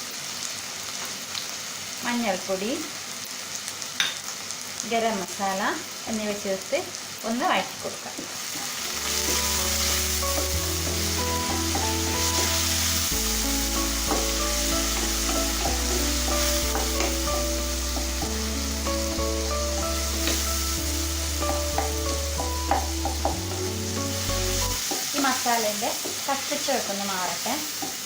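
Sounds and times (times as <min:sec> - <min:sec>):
masala sizzling in hot oil: 0:00.0 - 0:28.0
spatula scraping and tapping pan: 0:08.6 - 0:13.0, 0:13.6 - 0:18.4, 0:21.4 - 0:23.8, 0:24.8 - 0:25.3, 0:27.8 - 0:28.0
background music with low bass: 0:09.0 - 0:24.8.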